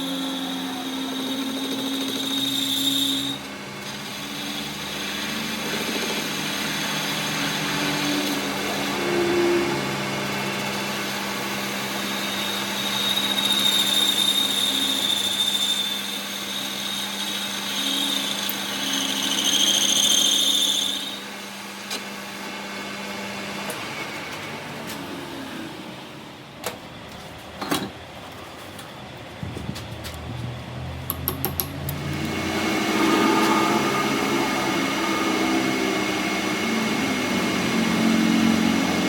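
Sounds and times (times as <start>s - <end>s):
power tool whining: 0.0s - 26.3s, 31.1s - 39.0s
low hum: 30.6s - 38.0s.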